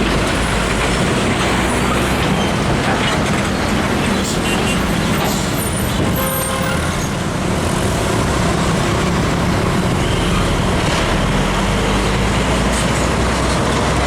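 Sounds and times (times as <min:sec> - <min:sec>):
heavy truck diesel engine: 0:00.0 - 0:14.0
tyre and road noise: 0:00.0 - 0:14.0.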